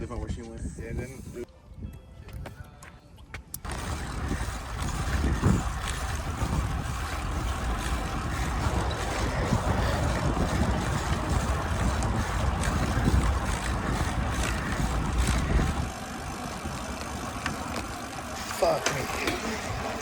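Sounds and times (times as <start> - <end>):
wind rushing over microphone: 3.6 - 16.8.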